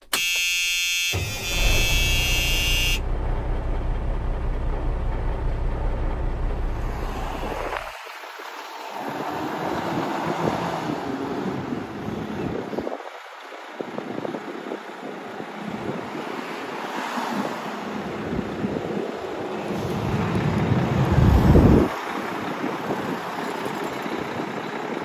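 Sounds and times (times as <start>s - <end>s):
truck air horn: 0.1s - 3.1s
diesel engine running: 1.2s - 7.9s, 18.2s - 25.0s
wind noise rushing: 18.4s - 23.2s.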